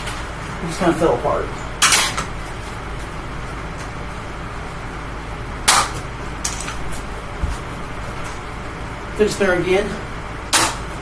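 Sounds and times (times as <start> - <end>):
box fan running: 0.0 - 11.0.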